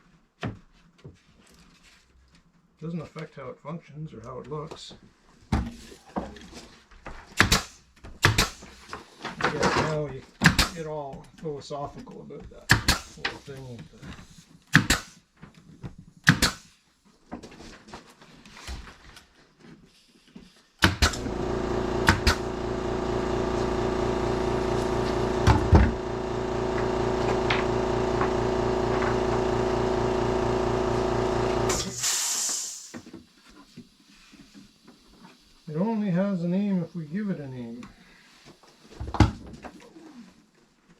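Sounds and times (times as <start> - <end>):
motor-driven machine running: 20.9 - 32.2
short hiss: 31.7 - 33.0.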